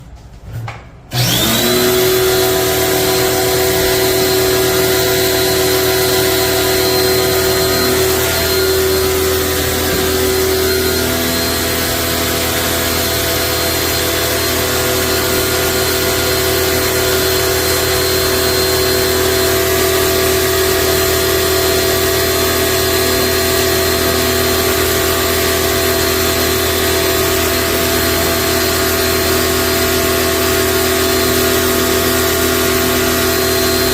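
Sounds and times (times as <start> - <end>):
electric motor whining: 1.1 - 33.9.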